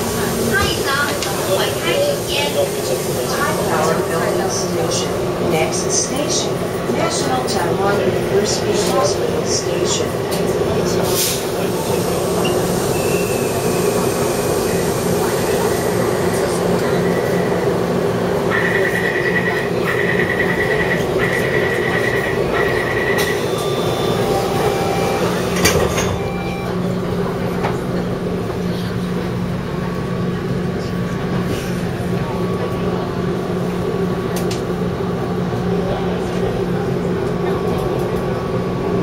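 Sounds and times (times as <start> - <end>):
train carriage hum and rumble: 0.0 - 39.0
high pulsing beep: 22.6 - 26.9.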